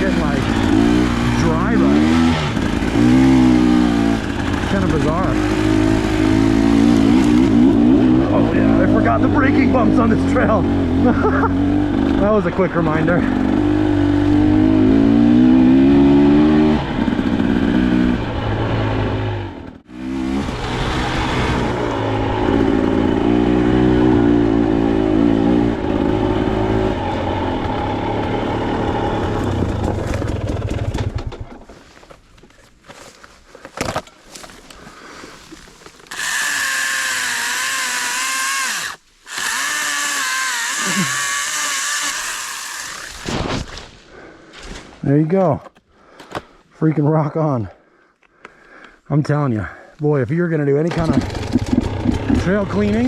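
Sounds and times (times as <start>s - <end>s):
dirt bike engine running: 0.0s - 31.6s, 36.1s - 43.4s, 50.9s - 53.0s
battery pruning saw whining: 36.0s - 43.4s.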